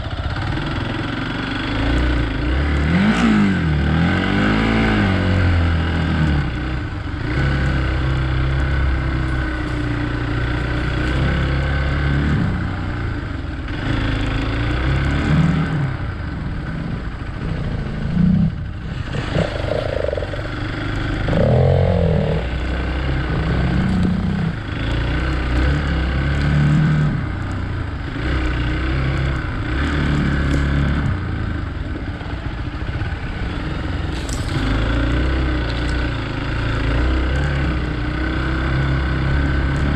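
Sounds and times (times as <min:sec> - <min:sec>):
motorcycle engine revving: 0:00.0 - 0:39.9
clatter: 0:23.2 - 0:37.8.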